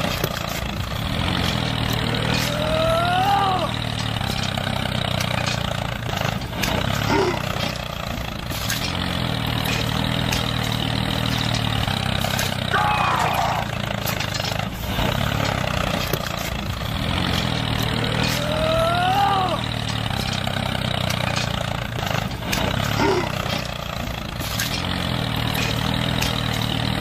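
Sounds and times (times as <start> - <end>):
tractor engine droning: 0.0 - 27.0.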